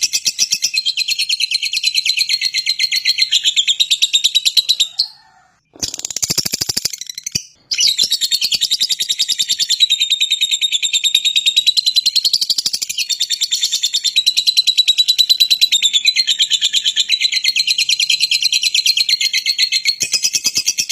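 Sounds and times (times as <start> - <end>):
bird chattering shrill chirps: 2.2 - 10.0.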